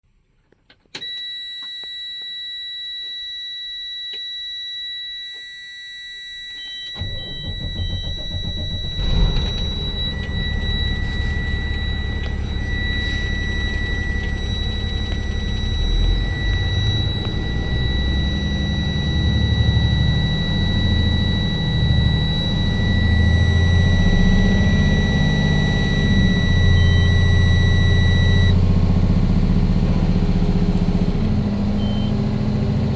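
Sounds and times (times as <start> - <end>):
warning buzzer high tone: 1.0 - 28.5
diesel engine starting and idling: 7.0 - 32.9.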